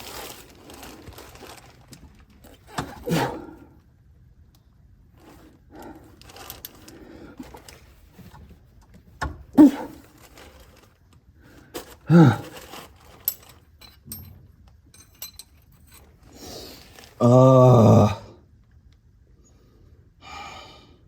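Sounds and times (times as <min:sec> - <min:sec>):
man grunting with effort: 0:03.0 - 0:03.6, 0:09.6 - 0:10.0, 0:12.0 - 0:12.6, 0:17.2 - 0:18.4
wrenches clicking and knocking: 0:11.8 - 0:16.2.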